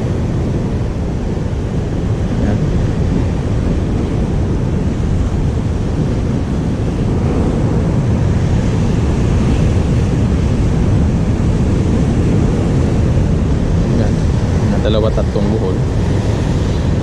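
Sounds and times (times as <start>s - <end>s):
sea surf: 0.0s - 17.0s
wind buffeting microphone: 0.0s - 17.0s.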